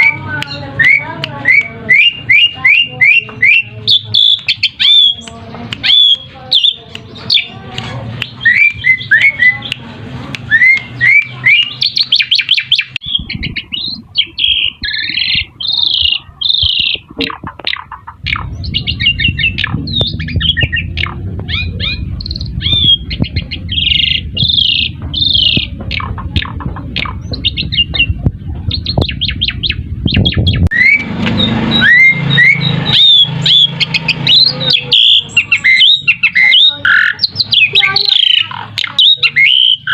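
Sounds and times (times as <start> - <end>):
starling song: 0.0 - 39.9
low steady rumble: 12.8 - 36.2.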